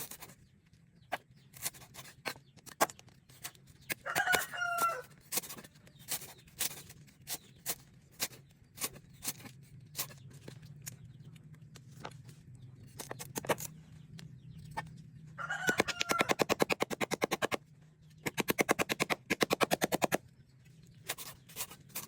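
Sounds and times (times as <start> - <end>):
rooster crowing: 4.0 - 5.1, 15.4 - 16.4.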